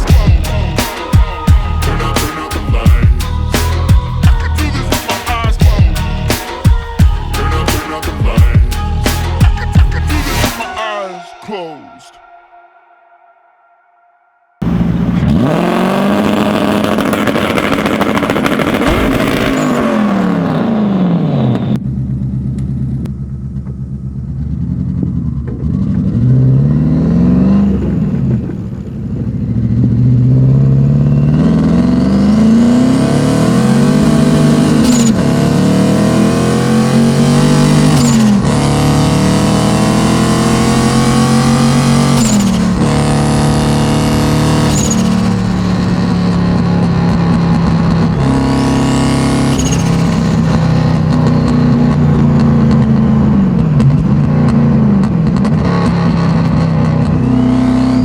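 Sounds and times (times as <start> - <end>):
car engine revving: 0.0 - 10.8, 14.6 - 58.0
turbo chirp: 30.9 - 46.2, 46.9 - 51.0.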